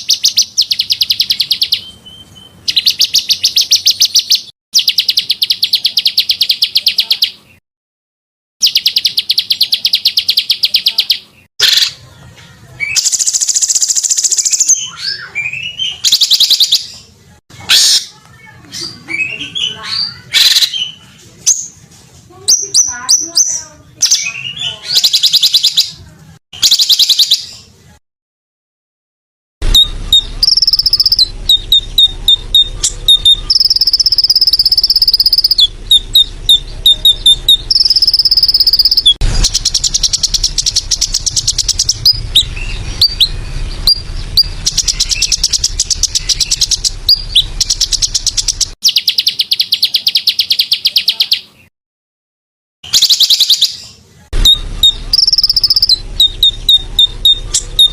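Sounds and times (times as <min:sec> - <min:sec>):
songbirds singing trills: 0:00.0 - 0:07.6, 0:08.6 - 0:27.9, 0:29.6 - 0:51.7, 0:52.8 - 0:57.9.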